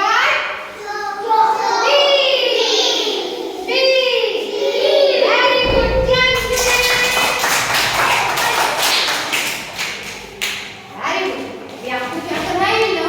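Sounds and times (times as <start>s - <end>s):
rapid hand-clapping: 6.3s - 10.8s.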